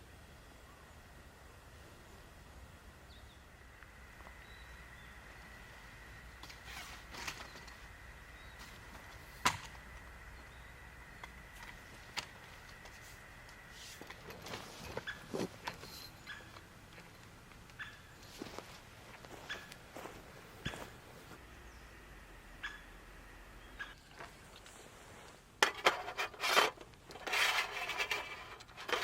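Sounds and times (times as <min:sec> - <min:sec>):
campfire crackling: 0:01.2 - 0:21.4.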